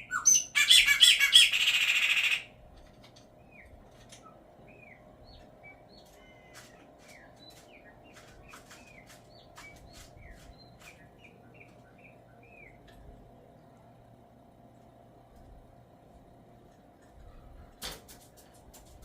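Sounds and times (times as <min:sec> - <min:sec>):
songbird chirping: 0:00.0 - 0:02.6, 0:03.2 - 0:17.7
steady low hum: 0:00.0 - 0:19.0.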